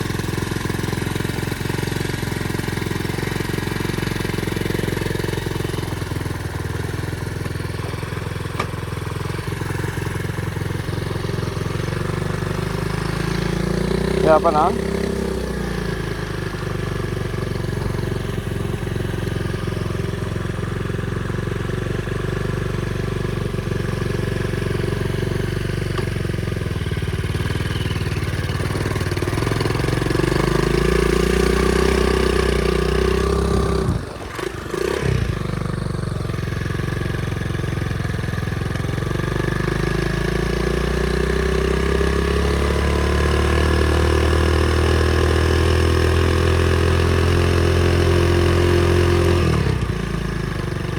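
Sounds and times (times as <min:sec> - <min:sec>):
motorbike engine revving: 0:00.0 - 0:50.9.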